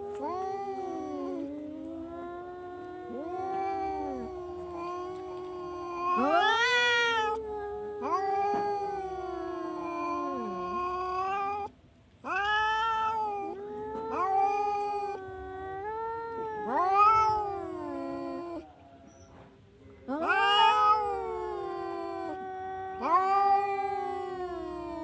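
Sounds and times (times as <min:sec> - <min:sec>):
cat yowling: 0:00.0 - 0:19.3, 0:20.1 - 0:25.0.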